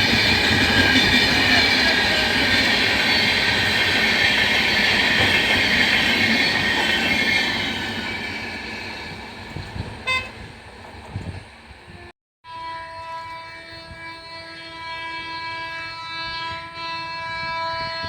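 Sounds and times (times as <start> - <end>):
train wheels on track: 0.0 - 12.1
train horn toot: 10.0 - 10.5, 11.9 - 18.0.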